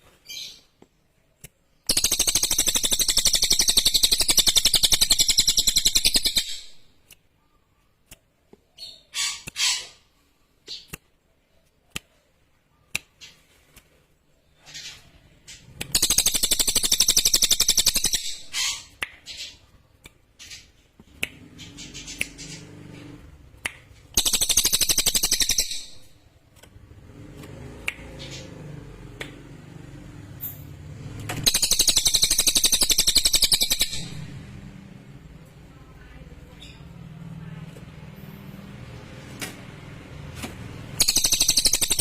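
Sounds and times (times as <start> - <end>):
sharp clicks: 0.8 - 7.3, 15.6 - 19.4, 20.0 - 29.5, 30.4 - 34.6, 40.4 - 42.0
bird trilling: 24.2 - 26.2, 31.4 - 34.3
faint low hum: 33.9 - 41.1.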